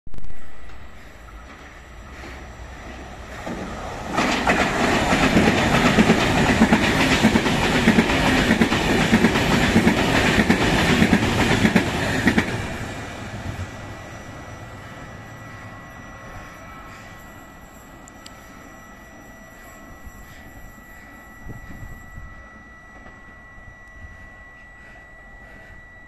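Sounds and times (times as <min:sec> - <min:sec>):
train passing with wheel clatter: 0:00.2 - 0:18.9.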